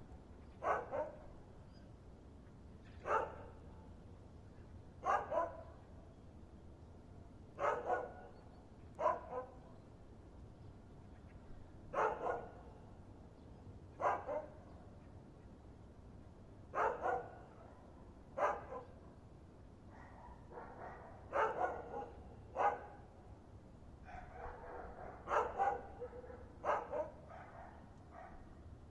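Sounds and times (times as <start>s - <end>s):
dog barking: 0.6s - 1.2s, 3.0s - 3.6s, 5.0s - 5.7s, 7.6s - 8.3s, 9.0s - 9.6s, 12.0s - 12.7s, 14.0s - 14.6s, 16.8s - 19.0s, 19.9s - 23.0s, 24.1s - 28.5s.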